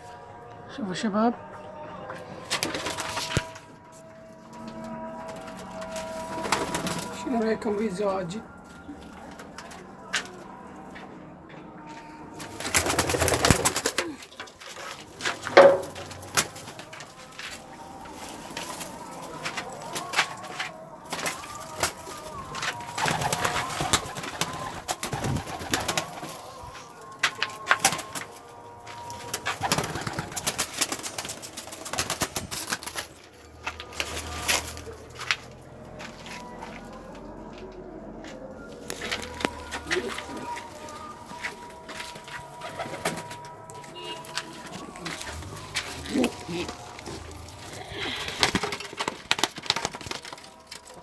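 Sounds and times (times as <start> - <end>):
wings rustling flurry: 12.4 - 28.4, 44.0 - 51.0
pigeons cooing: 21.6 - 27.0, 38.8 - 41.6, 42.6 - 51.0.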